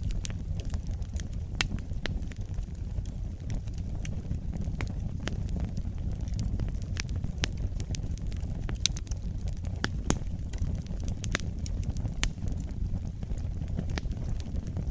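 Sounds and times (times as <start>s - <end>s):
fire crackles and pops: 0.0s - 14.9s
low rumble of flames: 0.0s - 14.9s.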